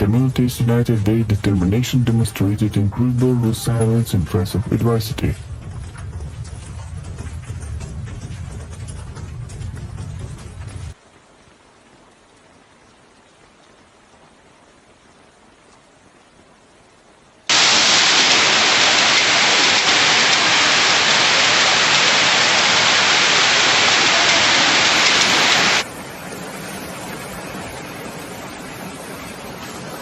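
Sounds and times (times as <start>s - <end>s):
steady wash of rain and water: 10.0s - 30.0s
heavy rain hissing: 17.5s - 30.0s.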